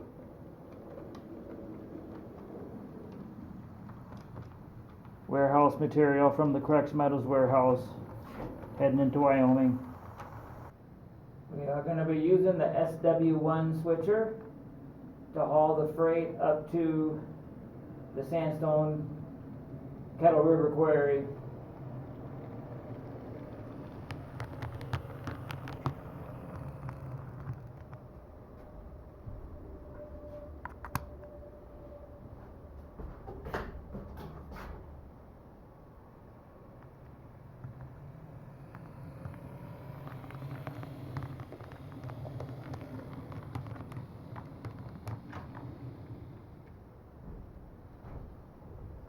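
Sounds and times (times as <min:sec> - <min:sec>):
wheels clicking over rail joints: 0:00.0 - 0:10.8, 0:19.4 - 0:31.4, 0:32.6 - 0:49.0
model train motor hum: 0:09.4 - 0:10.7, 0:21.4 - 0:27.8.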